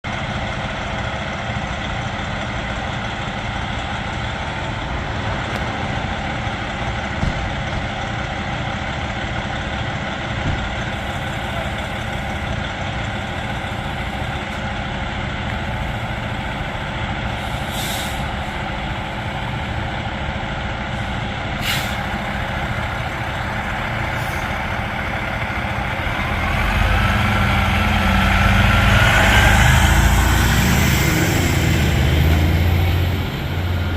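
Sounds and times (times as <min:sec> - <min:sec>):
diesel engines idling: 0:00.0 - 0:33.9
rising engine whine: 0:10.9 - 0:33.9
air brake hisses: 0:17.3 - 0:18.6, 0:21.0 - 0:22.2.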